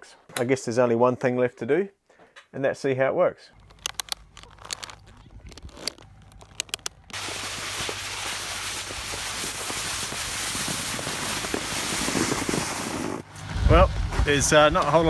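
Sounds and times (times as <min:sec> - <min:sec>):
snowboard sliding over snow: 0:07.1 - 0:15.0.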